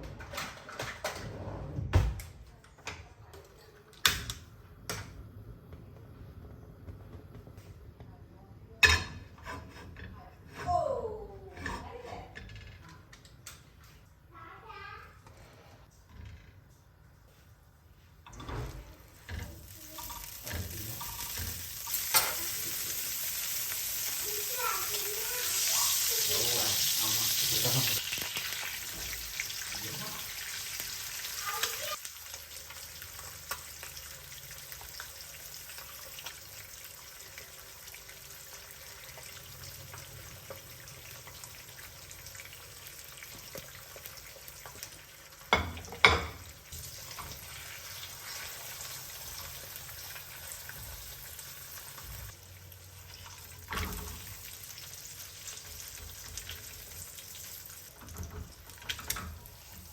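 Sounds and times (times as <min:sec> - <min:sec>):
faint steady sizzle: 0:12.0 - 0:59.9.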